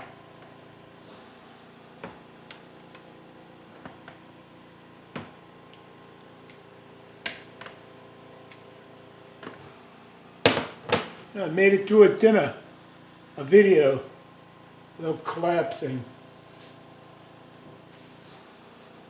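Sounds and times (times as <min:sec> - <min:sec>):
faint appliance hum: 0:00.0 - 0:19.0.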